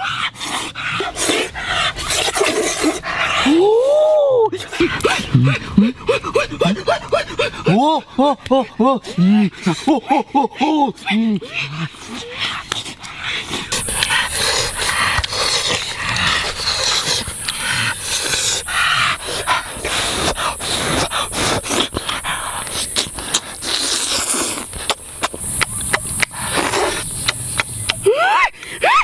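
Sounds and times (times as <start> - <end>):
breathing: 0.0 - 2.2, 2.9 - 3.5, 11.4 - 22.9
steady high-pitched hiss: 0.0 - 29.0
wet chewing and lip-smacking: 4.6 - 28.0.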